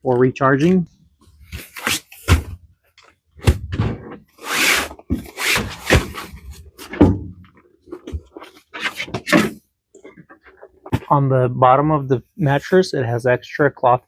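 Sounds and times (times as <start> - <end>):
handling knocks and thumps: 5.0 - 11.1.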